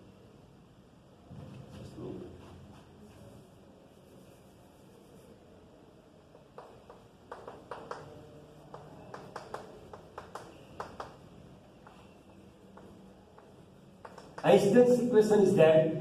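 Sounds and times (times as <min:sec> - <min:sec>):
pen tapping and scratching: 0:06.3 - 0:12.0, 0:12.7 - 0:14.6.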